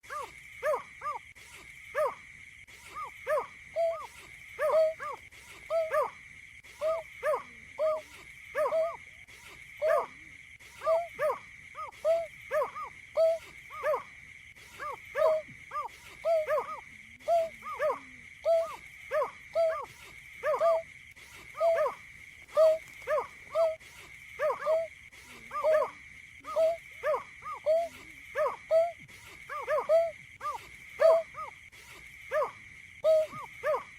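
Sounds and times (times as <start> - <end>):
wetland bird calling: 14.7 - 31.6.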